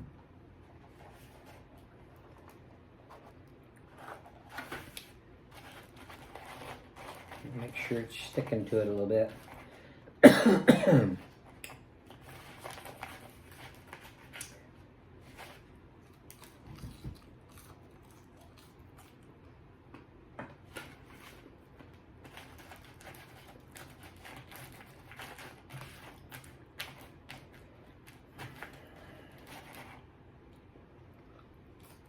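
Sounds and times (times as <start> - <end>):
chewing food: 15.3 - 20.2, 22.2 - 32.0.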